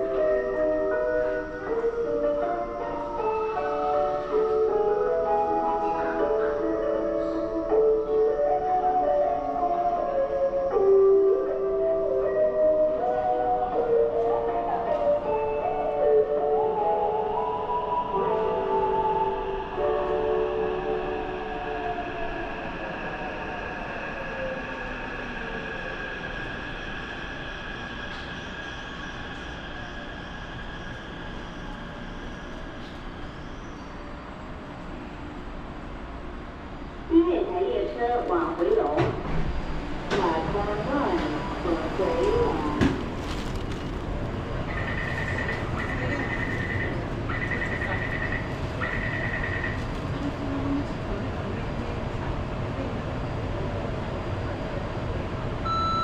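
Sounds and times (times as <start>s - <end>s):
train rumbling: 0.0s - 56.0s
high electronic warning beeps: 55.7s - 56.0s.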